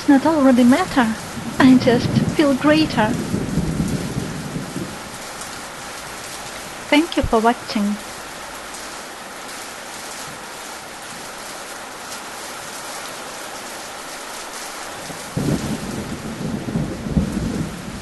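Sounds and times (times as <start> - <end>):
rain falling: 0.0 - 18.0
low rumble of thunder: 0.5 - 6.9, 15.0 - 18.0.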